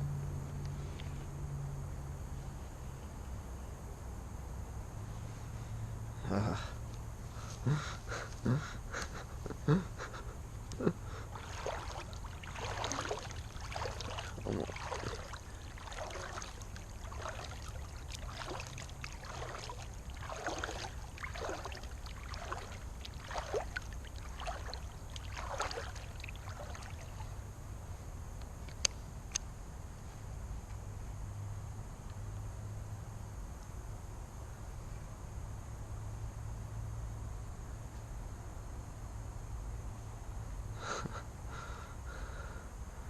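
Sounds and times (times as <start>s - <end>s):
paddle splashing water: 10.8s - 27.4s.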